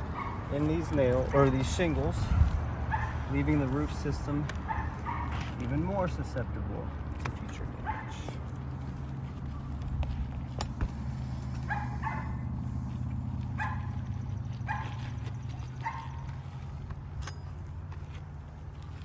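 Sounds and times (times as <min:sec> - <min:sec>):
dog barking: 0:00.1 - 0:00.6, 0:02.3 - 0:03.3, 0:04.6 - 0:05.4, 0:07.8 - 0:08.3, 0:11.6 - 0:12.5, 0:13.6 - 0:14.1, 0:14.7 - 0:15.1, 0:15.8 - 0:16.3.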